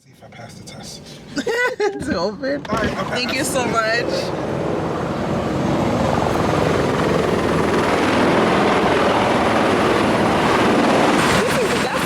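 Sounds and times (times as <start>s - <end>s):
helicopter rotor and engine: 2.6s - 12.0s.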